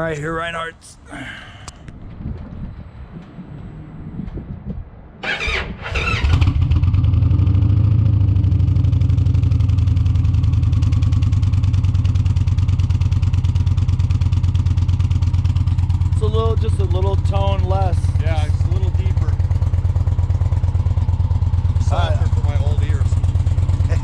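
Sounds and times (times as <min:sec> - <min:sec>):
motorcycle engine cranking: 0:05.2 - 0:06.8
motorcycle engine deep idle: 0:08.0 - 0:24.0.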